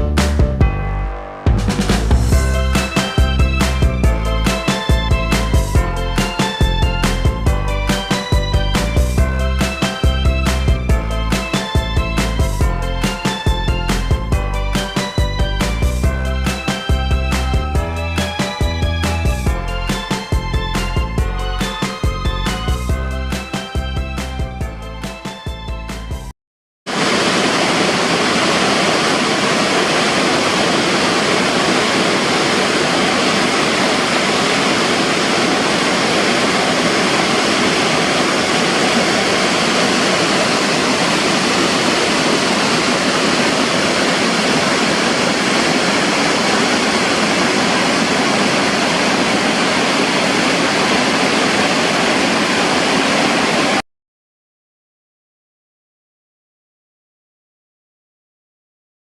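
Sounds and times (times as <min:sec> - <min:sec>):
waterfall rushing: 0:26.9 - 0:53.8.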